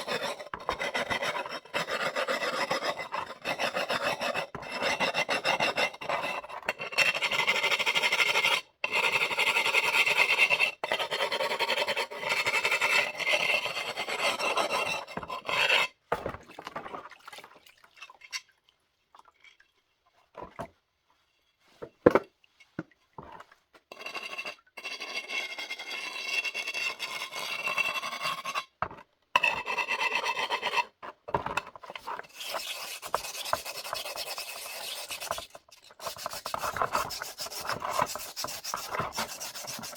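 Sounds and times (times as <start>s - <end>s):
abrasive scraping ceramic: 0.0s - 7.0s, 11.7s - 16.0s, 31.8s - 39.9s.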